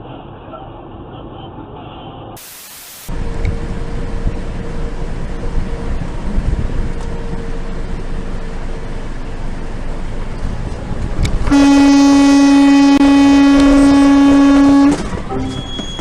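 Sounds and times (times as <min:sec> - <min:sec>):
road driving noise: 0:00.0 - 0:16.0
vehicle horn blast: 0:11.4 - 0:15.8.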